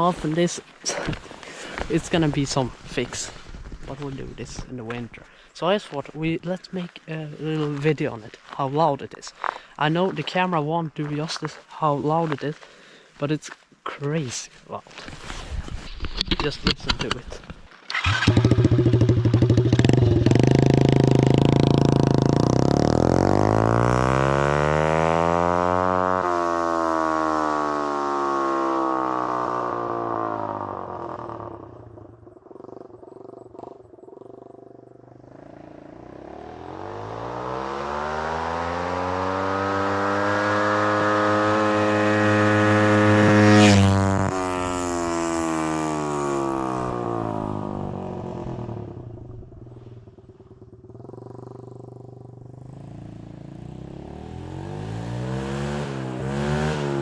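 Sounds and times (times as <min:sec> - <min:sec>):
pit bike engine with open exhaust: 0:14.9 - 0:57.0.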